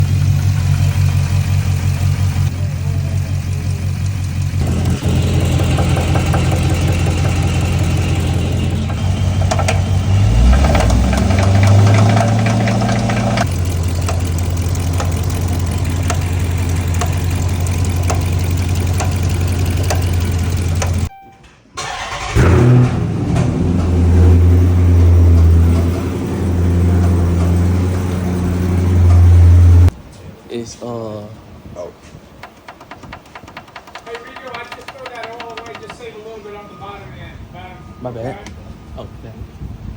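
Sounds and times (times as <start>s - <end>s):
car engine running: 0.0s - 21.1s, 21.9s - 30.0s
light regular engine knocking: 0.0s - 21.1s, 23.8s - 29.9s, 32.4s - 36.6s.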